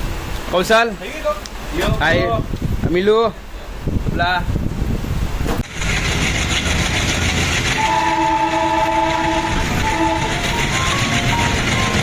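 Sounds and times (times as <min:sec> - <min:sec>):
train rumbling: 0:00.0 - 0:12.0
train horn blasts: 0:07.6 - 0:12.0.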